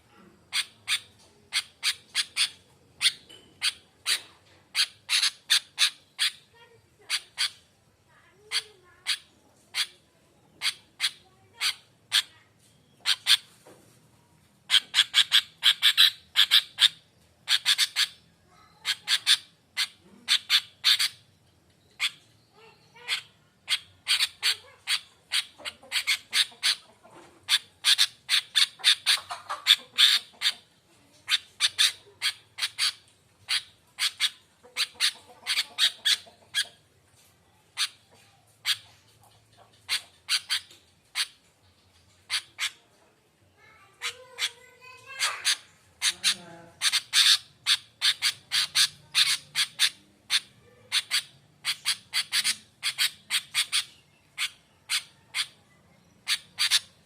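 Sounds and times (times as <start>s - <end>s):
bird chattering calls: 0.5s - 7.7s, 8.4s - 13.5s, 14.7s - 30.7s, 31.3s - 36.9s, 37.6s - 42.9s, 43.5s - 57.0s.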